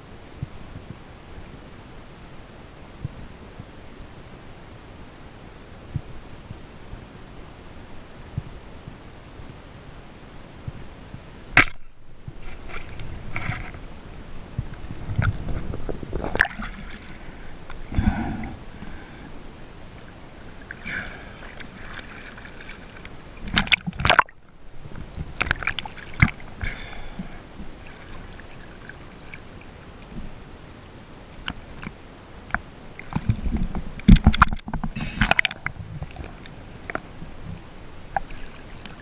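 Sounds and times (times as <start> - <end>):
water sloshing and gurgling: 11.6 - 39.0
water splashing: 14.5 - 19.3, 19.9 - 30.2, 32.8 - 37.3, 38.0 - 39.0.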